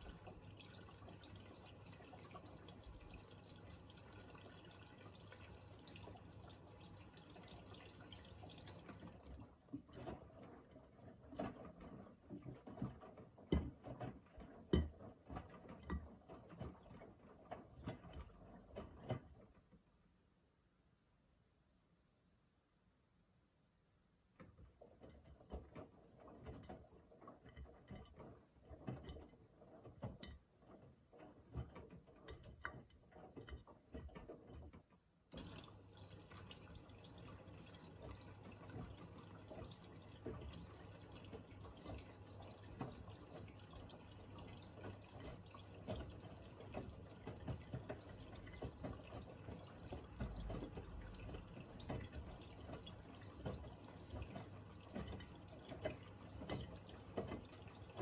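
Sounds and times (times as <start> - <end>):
water splashes and drips: 0.0 - 12.9, 35.3 - 58.0.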